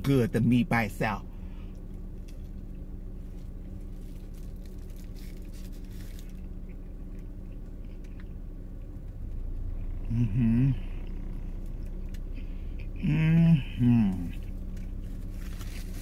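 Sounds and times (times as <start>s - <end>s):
paper wrapper rustling: 3.2s - 6.4s, 15.0s - 16.0s
wet chewing: 3.8s - 10.0s
woman humming with full mouth: 10.0s - 11.4s, 13.0s - 14.4s.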